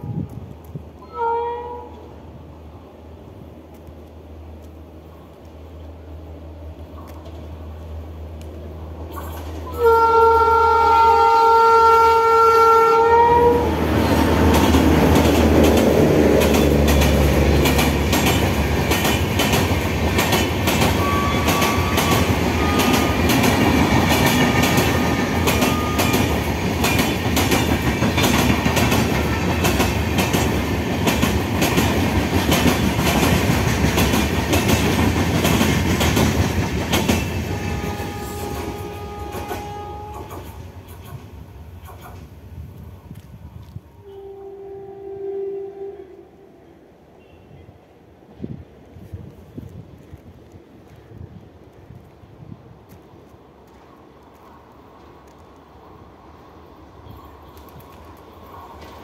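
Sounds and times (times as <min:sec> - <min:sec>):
train rumble: 0:00.0 - 0:59.0
locomotive multi-tone horn: 0:01.0 - 0:02.1, 0:09.7 - 0:14.3, 0:21.0 - 0:23.3, 0:24.5 - 0:26.4, 0:37.4 - 0:40.6, 0:44.0 - 0:47.7
wheels clacking over rail joints: 0:13.8 - 0:42.3.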